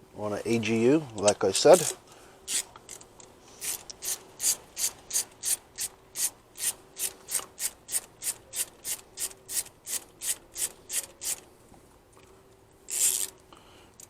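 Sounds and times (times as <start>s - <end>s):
ratchet wrench clicking: 3.6s - 11.4s, 12.9s - 13.4s.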